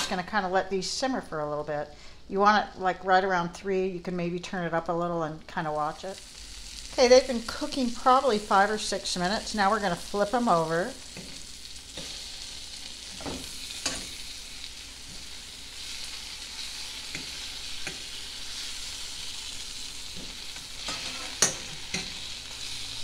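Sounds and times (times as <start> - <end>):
food sizzling in a skillet: 5.8 - 23.0
fork scraping a pan: 20.2 - 22.3.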